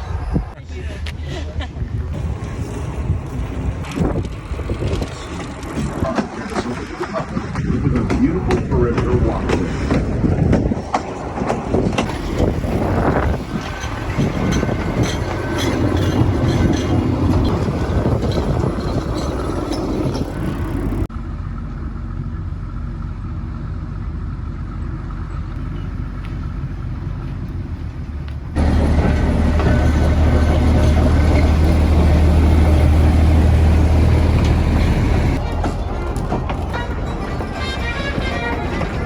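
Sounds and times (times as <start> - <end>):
train rumbling on rails: 0.0 - 39.0
rail clicks: 2.1 - 21.1, 25.6 - 39.0
low engine hum: 12.0 - 39.0.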